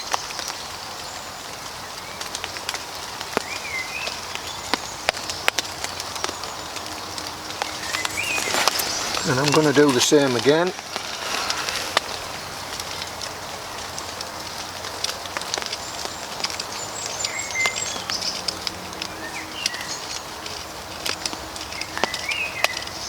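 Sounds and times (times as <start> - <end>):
rain pattering: 0.0 - 23.0
small bird chirping: 6.2 - 13.1.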